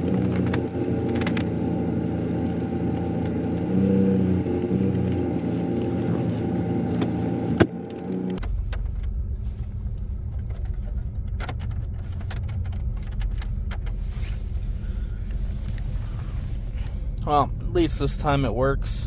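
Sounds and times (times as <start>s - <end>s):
car engine running inside cabin: 0.0s - 19.0s
light clicks and rattles: 7.9s - 14.6s.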